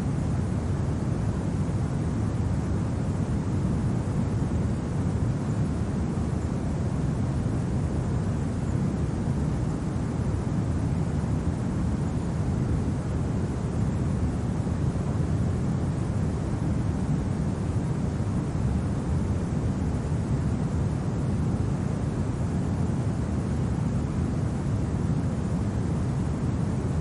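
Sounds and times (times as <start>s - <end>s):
steady low wind rumble: 0.0s - 27.0s.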